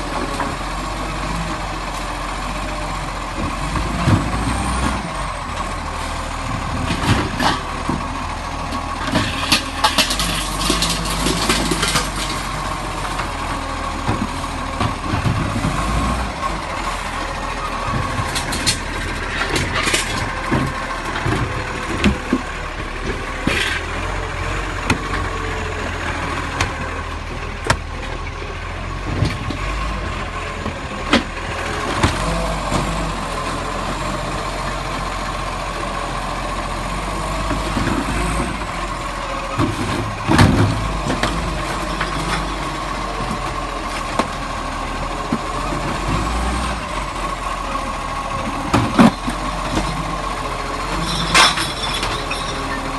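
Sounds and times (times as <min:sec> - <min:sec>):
garbage truck engine running: 0:00.0 - 0:52.9
knocks and clanks: 0:17.8 - 0:23.9, 0:39.5 - 0:42.5, 0:50.9 - 0:52.9.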